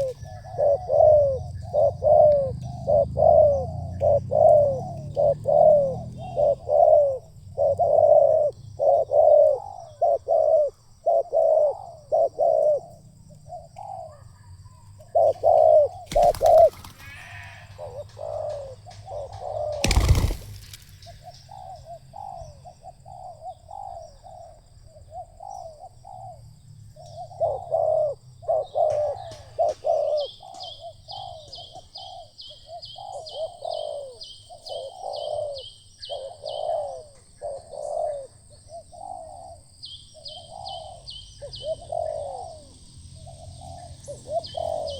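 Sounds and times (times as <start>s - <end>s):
doves cooing: 0.0s - 26.5s, 27.1s - 44.9s.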